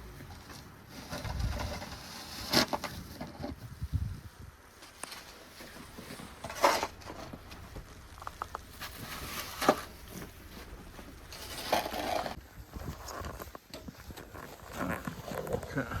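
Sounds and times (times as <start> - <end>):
snow shovel scraping snow: 0.8 - 3.2, 8.7 - 13.5
wind rumble on microphone: 1.1 - 2.0, 2.8 - 4.8, 12.2 - 16.0.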